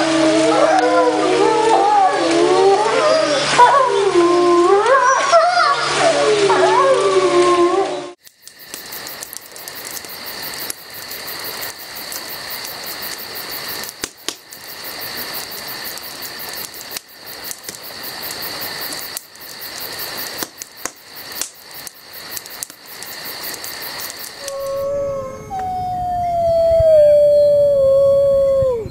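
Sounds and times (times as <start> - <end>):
constant hiss: 0.0 - 28.9
insects chirping: 8.2 - 28.9.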